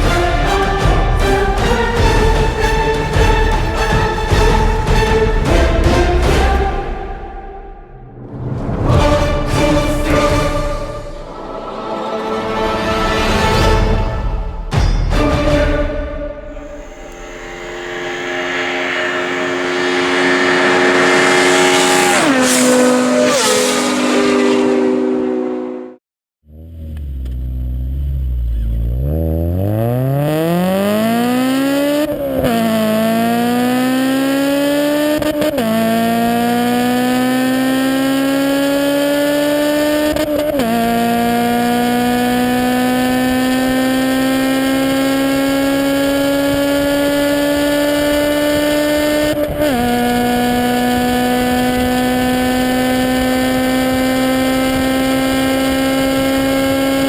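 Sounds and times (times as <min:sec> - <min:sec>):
sustained sound stepping down in pitch: 0:16.5 - 0:25.7
car engine accelerating hard: 0:16.5 - 0:57.0.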